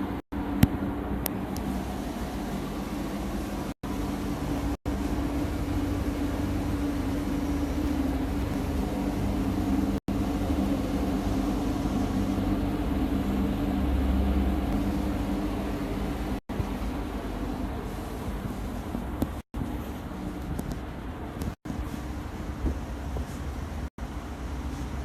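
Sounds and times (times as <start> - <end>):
machine humming: 0.0 - 25.0.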